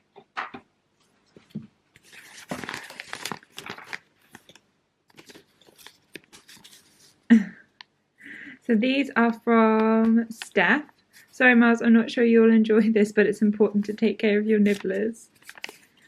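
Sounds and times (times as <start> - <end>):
paper packaging rustling: 2.0 - 7.2, 13.8 - 16.0.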